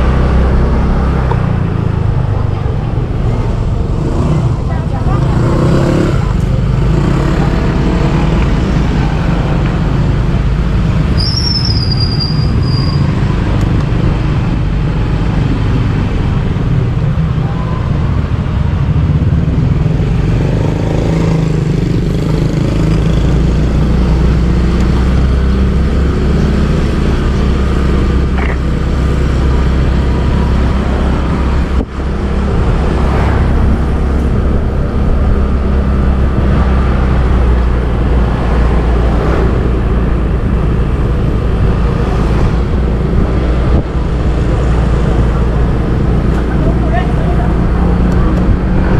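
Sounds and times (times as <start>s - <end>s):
street traffic: 0.0s - 48.9s
brief high squeal: 11.2s - 13.1s.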